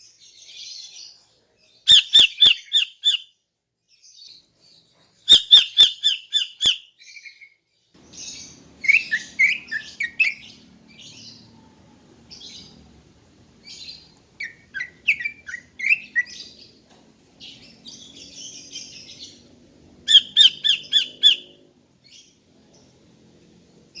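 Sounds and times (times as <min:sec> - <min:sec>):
bird chirps: 0:01.9 - 0:03.3, 0:04.1 - 0:23.0
bird calling sharp notes: 0:08.0 - 0:11.4, 0:13.6 - 0:16.6, 0:20.1 - 0:21.6
faint low hum: 0:08.0 - 0:24.0.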